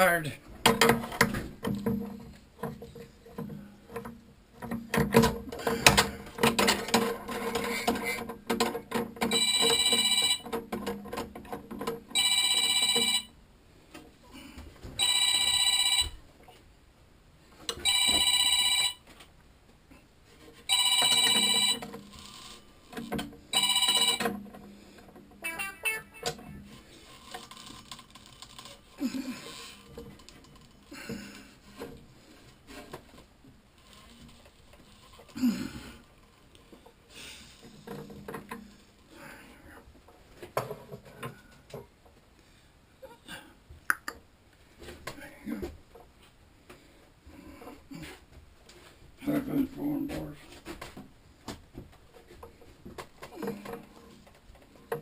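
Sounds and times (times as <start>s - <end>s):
knocks and clatter: 0.5s - 13.2s
telephone ringing: 9.2s - 10.6s, 12.1s - 13.4s, 15.0s - 16.2s, 17.8s - 19.1s, 20.7s - 22.6s, 23.5s - 24.5s, 25.4s - 26.6s.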